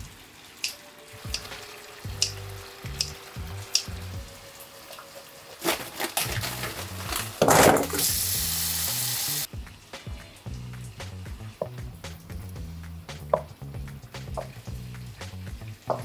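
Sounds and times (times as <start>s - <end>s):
food sizzling in a frying pan: 0.0s - 10.9s
quiet background music: 0.0s - 16.0s.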